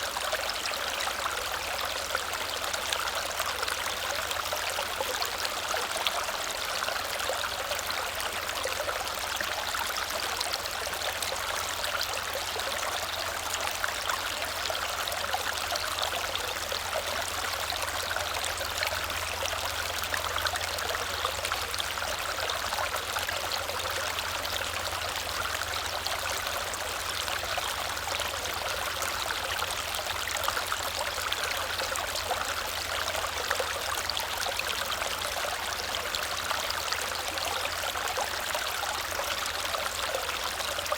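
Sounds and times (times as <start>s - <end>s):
small waterfall splashing: 0.0s - 40.9s.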